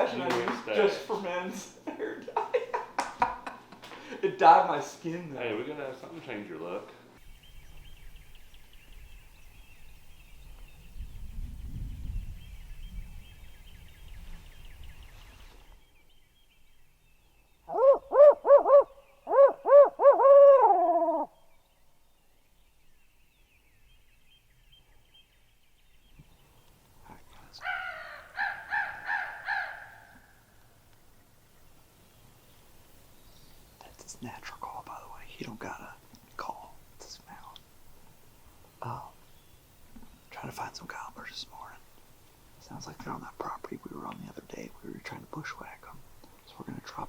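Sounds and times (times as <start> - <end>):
man hooting like an owl: 17.7 - 21.3.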